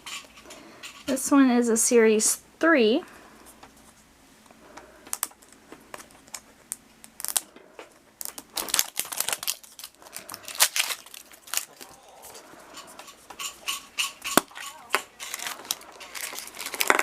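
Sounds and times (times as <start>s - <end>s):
wrapper crinkled and torn: 7.0s - 7.5s, 8.2s - 12.4s, 13.4s - 17.0s.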